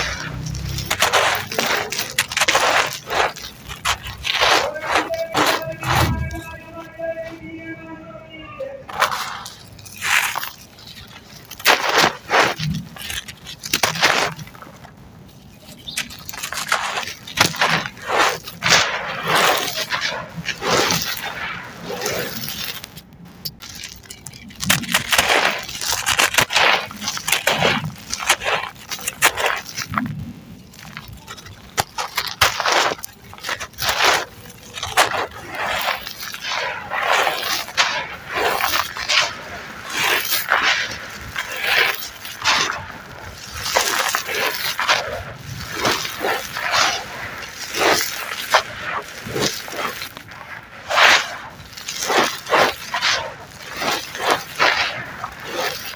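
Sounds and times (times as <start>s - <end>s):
cement chunks crunching by hand: 0.0s - 6.8s, 8.9s - 55.9s.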